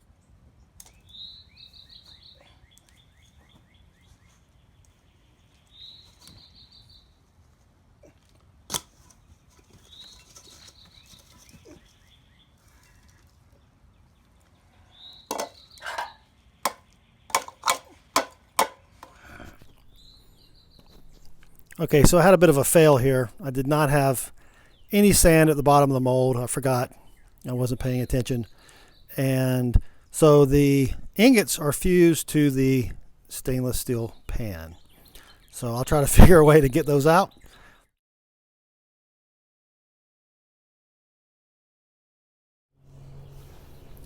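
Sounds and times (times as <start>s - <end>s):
songbird singing: 0.0s - 7.3s, 9.6s - 37.9s, 43.0s - 44.0s
sharp knocks and clicks: 16.7s - 19.2s.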